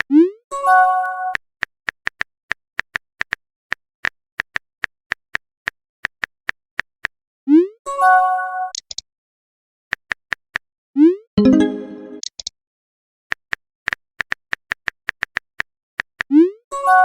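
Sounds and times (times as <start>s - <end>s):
phone message chime: 11.4s - 12.2s.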